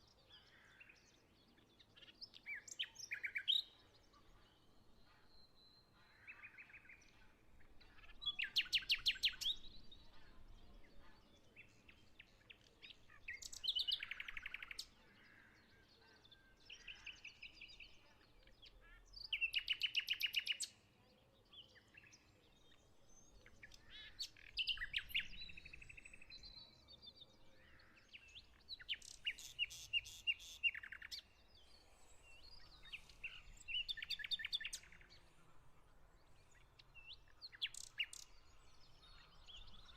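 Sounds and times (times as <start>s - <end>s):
faint bird chirps: 0.0s - 39.9s
songbirds trilling: 21.7s - 39.9s.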